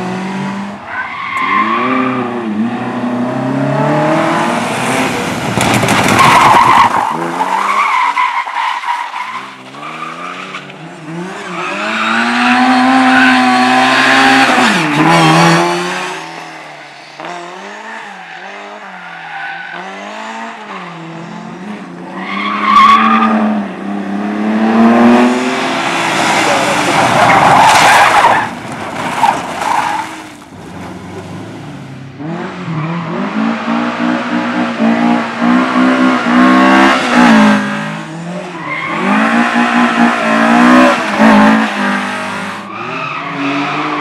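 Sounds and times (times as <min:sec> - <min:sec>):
car engine revving: 0:00.0 - 0:44.0.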